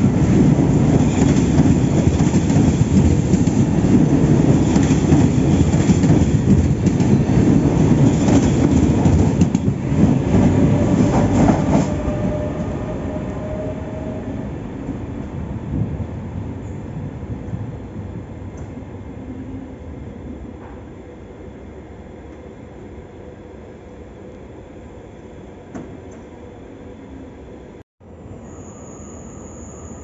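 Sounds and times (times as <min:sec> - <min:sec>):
train wheels rumbling and clattering: 0:00.0 - 0:13.7.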